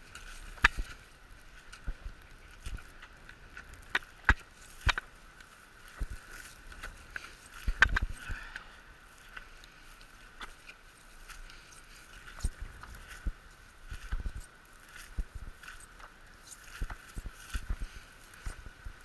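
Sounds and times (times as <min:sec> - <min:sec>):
faint steady hum: 0:00.0 - 0:19.0
footsteps on wet ground: 0:09.1 - 0:19.0.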